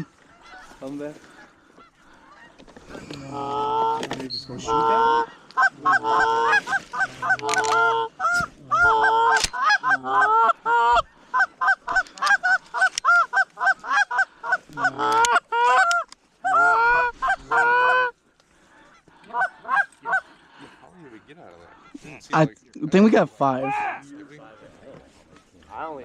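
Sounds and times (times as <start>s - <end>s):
geese honking and clucking: 0.0s - 26.0s.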